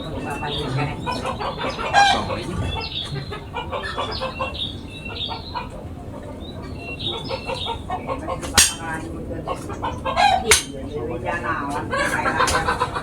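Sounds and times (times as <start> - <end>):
chickens clucking: 0.0 - 13.0
small birds chirping: 0.0 - 13.0.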